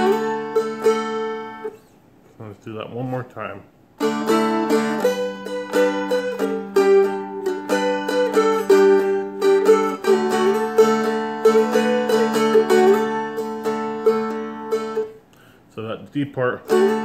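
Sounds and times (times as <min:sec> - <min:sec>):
plucked dulcimer melody over drone: 0:04.0 - 0:15.1.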